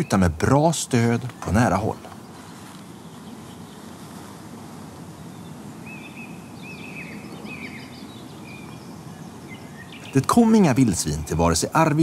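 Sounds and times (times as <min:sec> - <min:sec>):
steady low background noise: 0:00.0 - 0:12.0
bird calling: 0:05.0 - 0:12.0.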